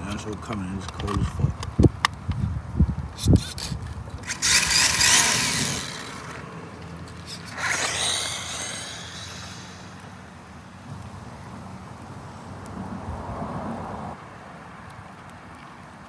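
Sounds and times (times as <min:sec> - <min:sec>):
rc car motor whine passing: 0:03.2 - 0:11.4.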